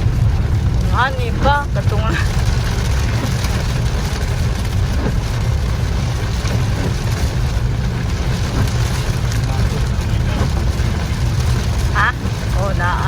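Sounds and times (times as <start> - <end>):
heavy rain hissing: 0.0 - 13.0
vehicle engine and tyres rumbling: 0.0 - 13.0.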